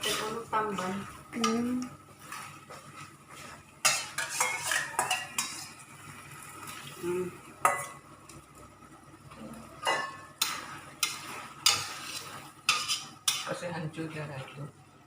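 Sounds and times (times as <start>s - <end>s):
food sizzling: 0.0s - 14.7s
utensil scraping a pan: 3.8s - 5.8s, 9.9s - 13.6s.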